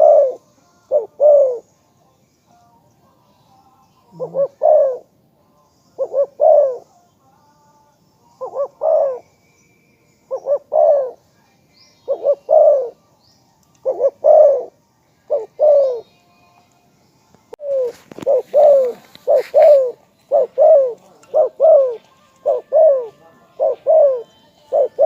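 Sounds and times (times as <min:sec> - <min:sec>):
dove cooing: 0:00.0 - 0:01.7, 0:04.1 - 0:05.2, 0:06.0 - 0:06.9, 0:08.4 - 0:09.3, 0:10.2 - 0:11.2, 0:12.1 - 0:13.0, 0:13.8 - 0:16.1, 0:17.6 - 0:25.0.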